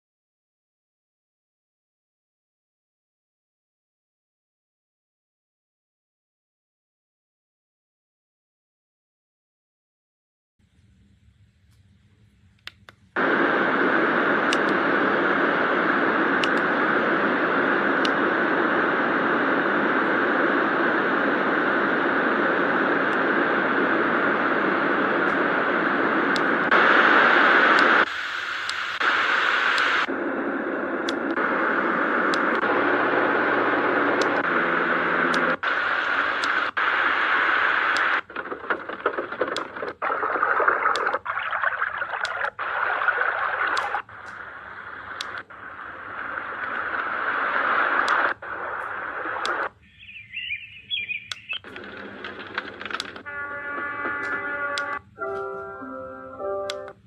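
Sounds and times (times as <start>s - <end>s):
white noise machine hiss: 10.6s - 41.0s
faint clicks: 12.5s - 18.3s, 31.0s - 31.5s, 35.3s - 41.3s, 41.9s - 49.8s, 51.3s - 55.5s.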